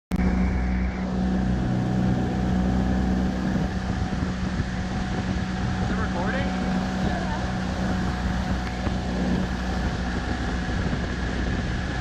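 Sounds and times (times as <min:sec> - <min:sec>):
outboard motor running: 0:00.1 - 0:12.0
wind noise on microphone: 0:00.1 - 0:12.0.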